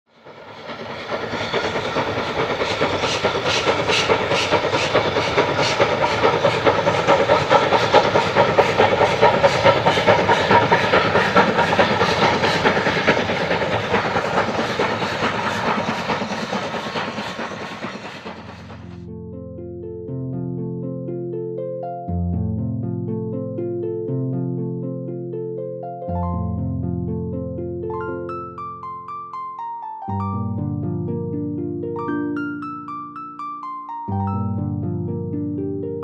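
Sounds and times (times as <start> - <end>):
clickety-clack of train wheels: 0.1 - 19.0
train running on rails: 0.1 - 19.1.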